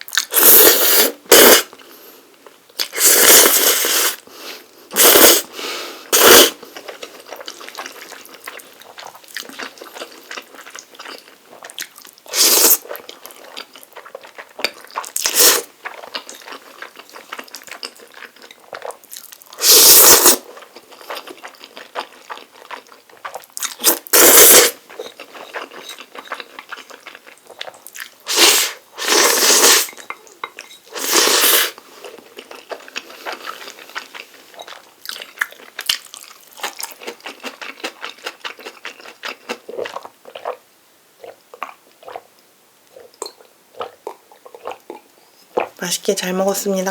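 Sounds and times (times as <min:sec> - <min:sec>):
loud noodle slurps: 0:00.3 - 0:01.7, 0:02.8 - 0:04.2, 0:04.9 - 0:06.6, 0:12.3 - 0:12.9, 0:15.2 - 0:15.7, 0:19.6 - 0:20.5, 0:23.7 - 0:24.8, 0:28.3 - 0:30.0, 0:30.9 - 0:31.8
soft wet chewing: 0:06.6 - 0:19.6, 0:20.4 - 0:24.0, 0:24.7 - 0:28.3, 0:31.7 - 0:40.6, 0:41.2 - 0:45.8.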